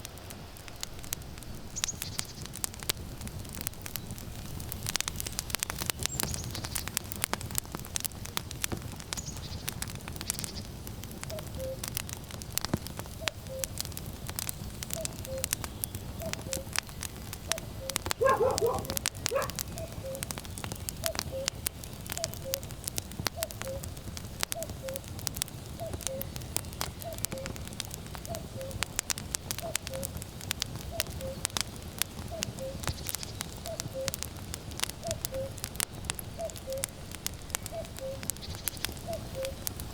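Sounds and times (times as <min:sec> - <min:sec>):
wood fire crackling: 0:00.0 - 0:39.9
cuckoo calling: 0:11.3 - 0:11.9, 0:13.2 - 0:13.8, 0:15.0 - 0:15.6, 0:17.5 - 0:20.3, 0:21.0 - 0:21.6, 0:22.2 - 0:22.6, 0:23.4 - 0:23.9, 0:25.8 - 0:26.3, 0:30.9 - 0:31.5, 0:32.3 - 0:33.0, 0:33.6 - 0:34.2, 0:35.0 - 0:35.6, 0:36.4 - 0:36.9, 0:37.6 - 0:39.6.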